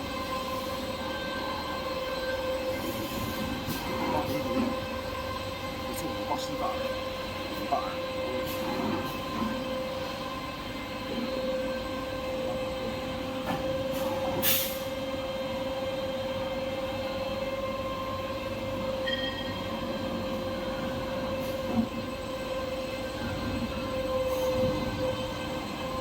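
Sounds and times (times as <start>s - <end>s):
machinery hum with whine: 0.0s - 26.0s.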